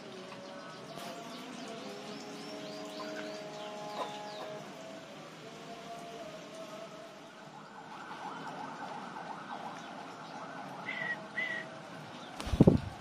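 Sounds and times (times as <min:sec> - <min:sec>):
birds chattering: 0:00.0 - 0:05.0
whistled bird notes: 0:10.8 - 0:11.8.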